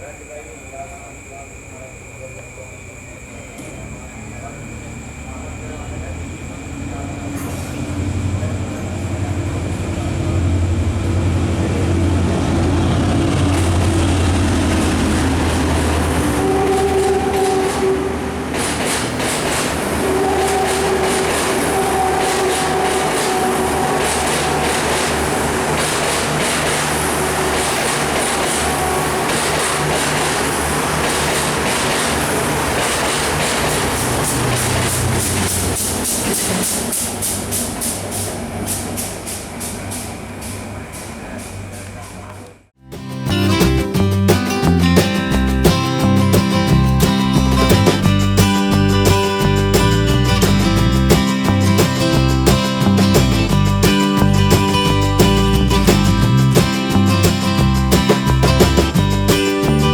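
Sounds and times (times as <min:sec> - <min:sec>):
diesel train engine humming: 0:00.0 - 0:59.9
wheels clacking over rail joints: 0:03.5 - 0:42.7, 0:45.6 - 0:59.9
train horn blasts: 0:07.2 - 0:36.7.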